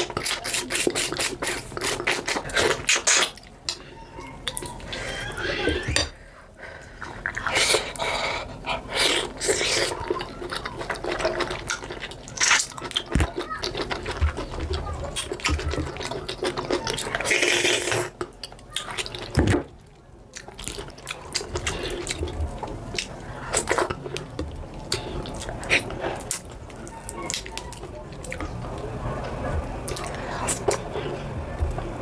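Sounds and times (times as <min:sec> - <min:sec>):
wet chewing and mouth noises: 0:00.0 - 0:06.0, 0:06.8 - 0:32.0.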